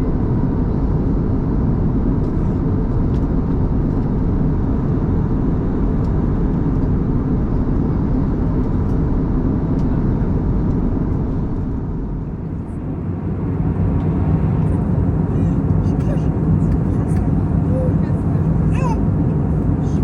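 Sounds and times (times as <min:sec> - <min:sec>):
airplane cabin engine and airflow noise: 0:00.0 - 0:20.0.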